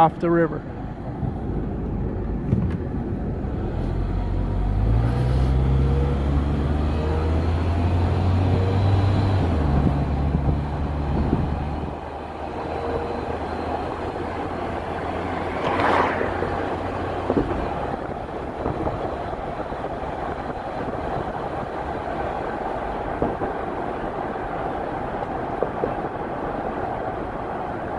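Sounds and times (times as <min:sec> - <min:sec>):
road traffic noise: 0:00.0 - 0:27.9
vehicle engine hum: 0:00.0 - 0:27.9
whoosh: 0:13.6 - 0:18.2.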